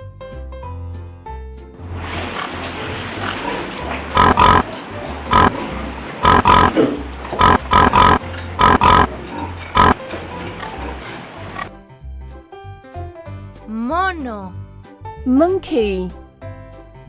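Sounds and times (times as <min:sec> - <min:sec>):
pig grunting and oinking: 0:03.2 - 0:11.7.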